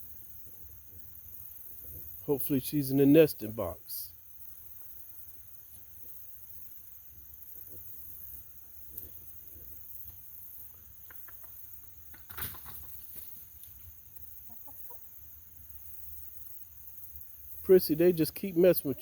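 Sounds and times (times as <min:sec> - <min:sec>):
hens clucking: 0:10.7 - 0:15.3.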